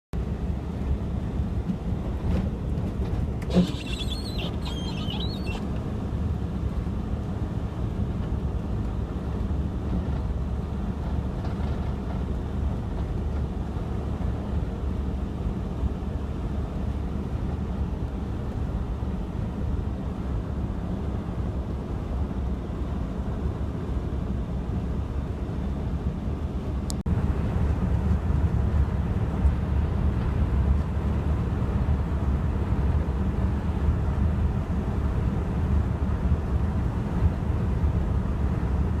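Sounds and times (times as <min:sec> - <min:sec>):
vehicle driving on snowy road: 0:00.2 - 0:39.0.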